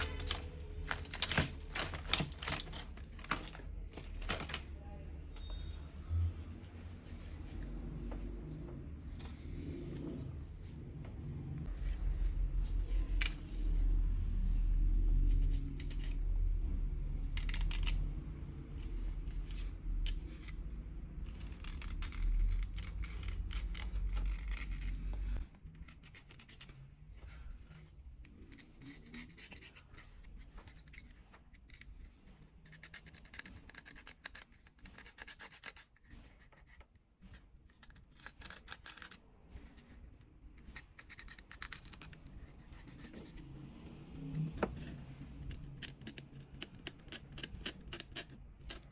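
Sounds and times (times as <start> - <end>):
small tools scraping and clicking: 0.0 - 4.6, 44.6 - 48.9
loud low rumble: 3.1 - 19.2.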